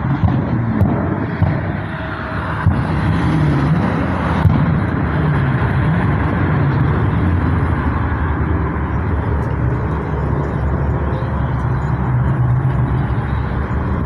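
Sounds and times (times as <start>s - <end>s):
car engines running: 0.0s - 14.0s
people talking: 8.7s - 14.0s.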